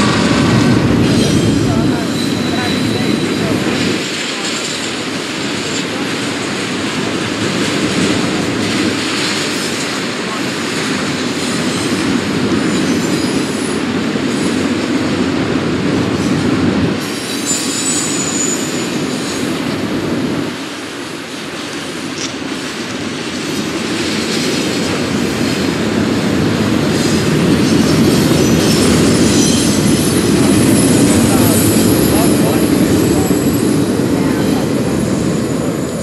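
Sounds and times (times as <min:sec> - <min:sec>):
freight train wheels rumbling: 0:00.0 - 0:36.0
faint high wheel squeals: 0:01.1 - 0:05.0, 0:17.1 - 0:19.5.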